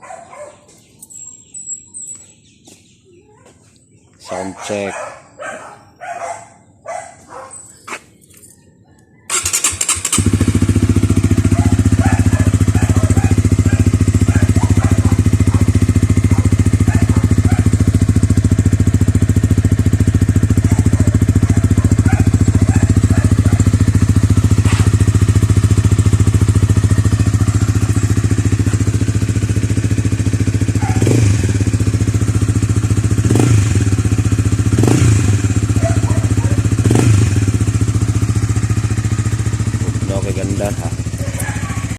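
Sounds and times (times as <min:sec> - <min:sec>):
motorcycle engine starting and idling: 0:09.2 - 0:41.9
motorcycle throttle blips: 0:09.3 - 0:41.9.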